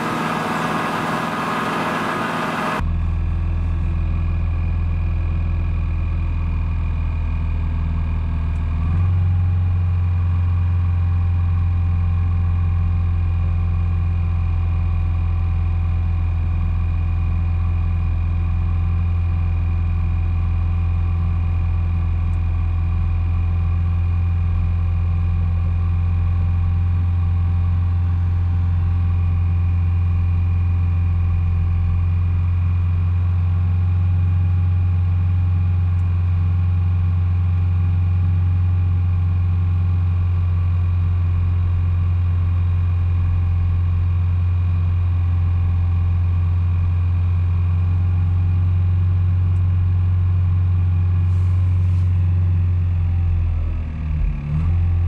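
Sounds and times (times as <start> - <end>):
car engine idling: 0.0 - 7.0, 50.5 - 53.2.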